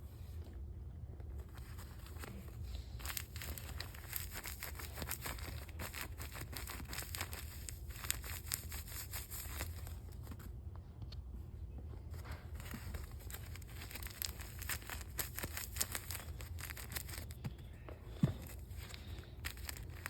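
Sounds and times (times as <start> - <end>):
low steady hum: 0.0 - 20.0
squishy toy crinkling: 1.4 - 10.5, 12.5 - 17.4, 18.2 - 20.0.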